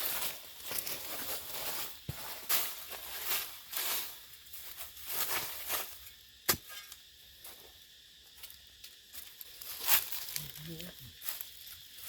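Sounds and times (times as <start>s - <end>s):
handling noises rustling and scraping: 0.0s - 7.6s.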